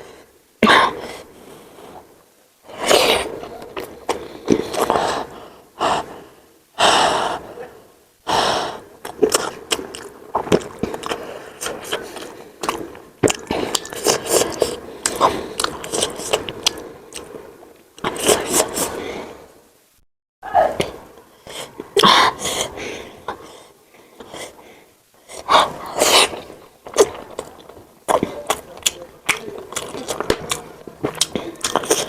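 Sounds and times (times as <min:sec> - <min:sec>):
sharp gasping breaths: 0:04.0 - 0:09.6, 0:21.3 - 0:26.6
wet chewing and lip-smacking: 0:09.0 - 0:19.0, 0:25.3 - 0:32.0.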